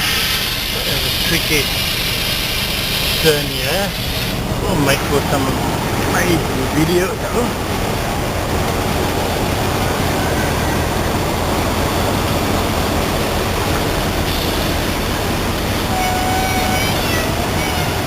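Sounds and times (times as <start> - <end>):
truck engine rumbling: 0.0 - 18.0.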